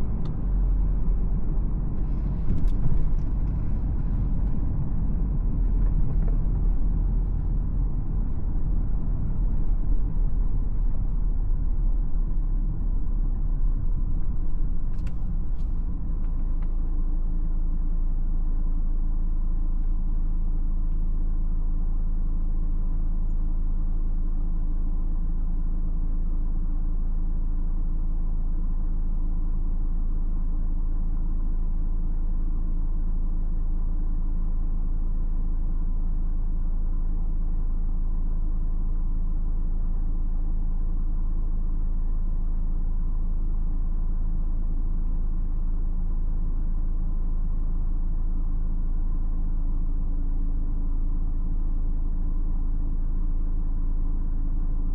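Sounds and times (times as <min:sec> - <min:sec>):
road rumble: 0:00.0 - 0:27.3
diesel car engine: 0:00.0 - 0:54.9.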